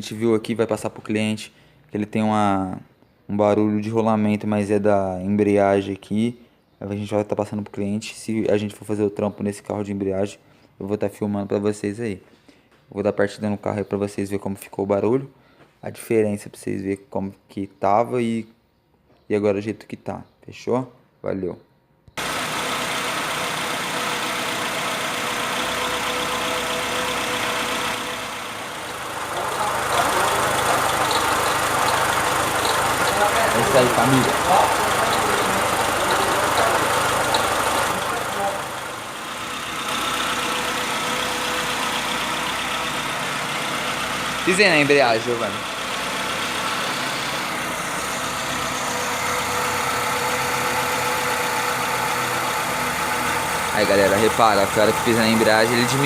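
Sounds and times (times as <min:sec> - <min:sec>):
car engine idling: 0:22.2 - 0:56.0.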